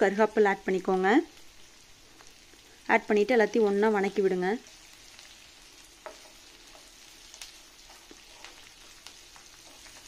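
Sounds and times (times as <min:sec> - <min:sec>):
food sizzling in oil: 0:00.0 - 0:10.0
wooden spatula stirring pan: 0:04.6 - 0:10.0.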